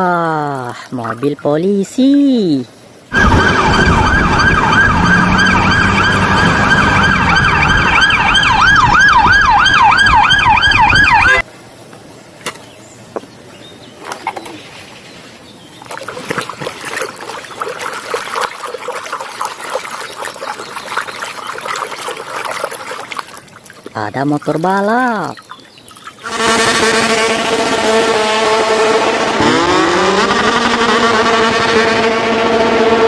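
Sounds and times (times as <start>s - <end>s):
police siren wailing and yelping: 3.1s - 11.4s
water splashing as toys are washed: 15.8s - 26.3s.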